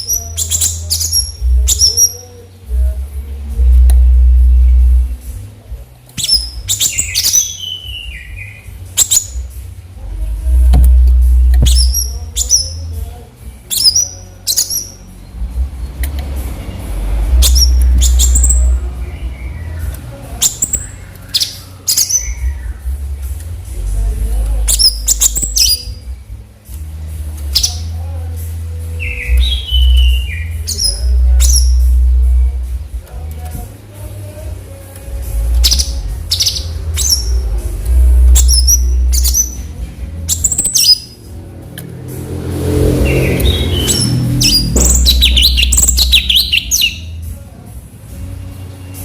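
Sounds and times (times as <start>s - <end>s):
bird chirping and singing: 0.0s - 47.4s
loud low rumble: 9.8s - 13.2s, 41.2s - 46.2s.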